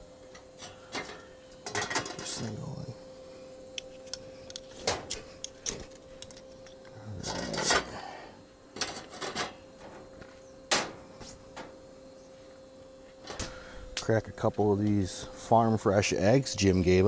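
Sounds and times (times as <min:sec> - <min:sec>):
metal clanks: 0:00.6 - 0:02.6, 0:04.5 - 0:08.0, 0:08.8 - 0:10.1, 0:10.7 - 0:11.8, 0:13.2 - 0:14.1.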